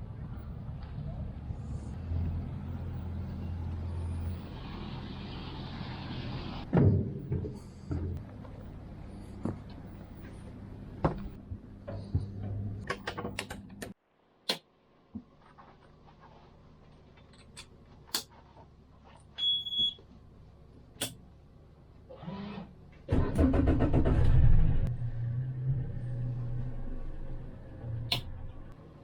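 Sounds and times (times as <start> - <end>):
boat engine starting and idling: 22.2 - 26.8.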